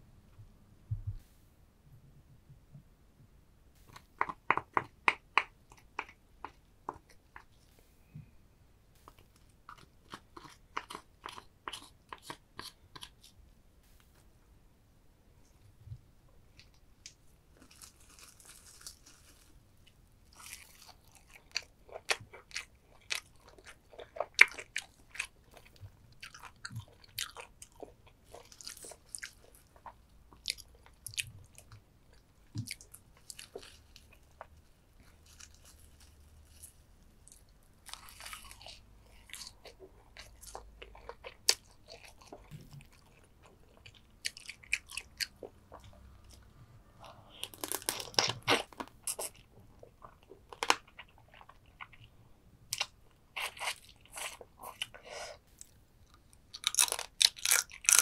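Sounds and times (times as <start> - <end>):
chewing: 9.0 - 13.4, 20.3 - 52.1
crab shell crunching: 56.5 - 58.0.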